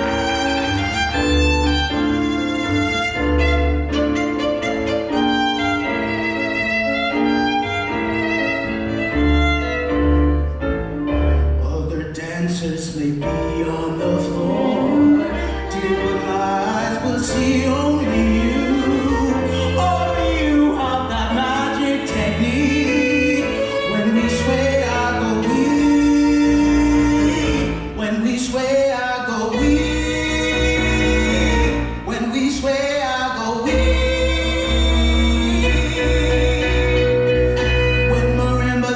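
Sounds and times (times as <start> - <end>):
violin: 0.0 - 12.0, 13.2 - 38.9
piano accompaniment: 0.0 - 38.9
person singing: 11.5 - 38.9.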